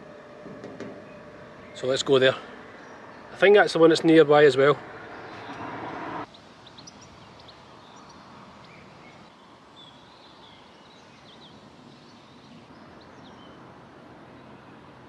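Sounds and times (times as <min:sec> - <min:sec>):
outdoor background hum: 0:00.0 - 0:15.0
small birds chirping: 0:04.9 - 0:13.7.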